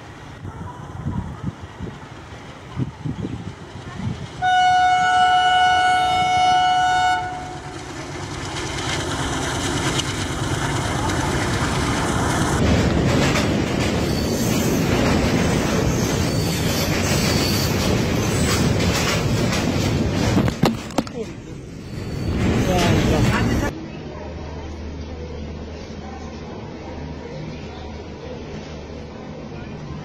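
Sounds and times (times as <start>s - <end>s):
train rumbling across steel bridge: 0.0s - 30.0s
locomotive horn: 4.4s - 7.8s.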